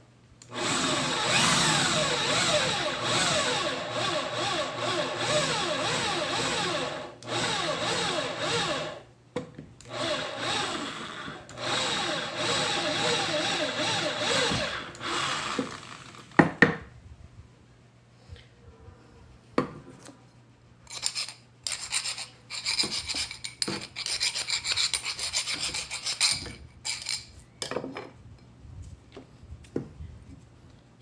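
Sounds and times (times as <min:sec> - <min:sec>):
motor revving: 0:00.5 - 0:09.0, 0:11.6 - 0:16.2.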